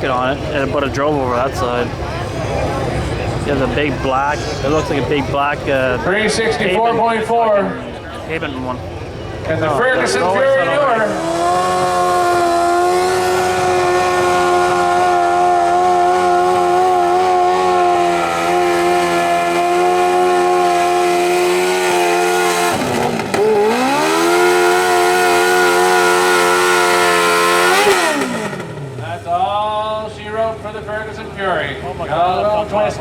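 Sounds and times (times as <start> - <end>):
motorcycle engine at high revs: 8.3 - 33.0.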